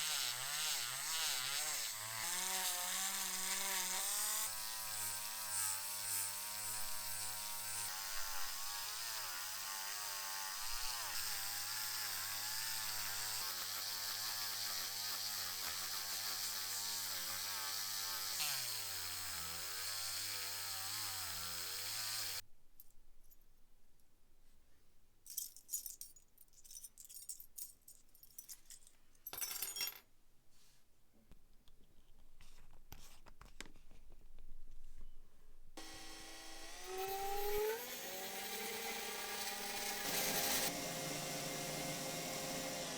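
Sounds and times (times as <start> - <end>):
electric power tool running: 0.0 - 22.4, 35.8 - 42.9.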